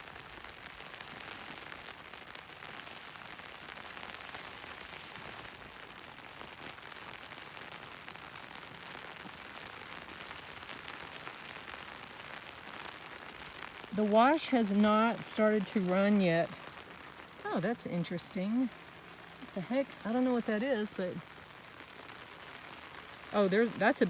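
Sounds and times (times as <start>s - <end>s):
steady rain on vegetation: 0.0s - 24.0s.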